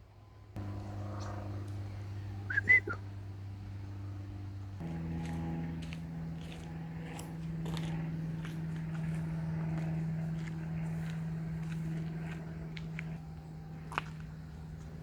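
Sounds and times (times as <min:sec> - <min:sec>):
steady hum: 0:00.0 - 0:15.0
footsteps crunching on path: 0:04.8 - 0:15.0.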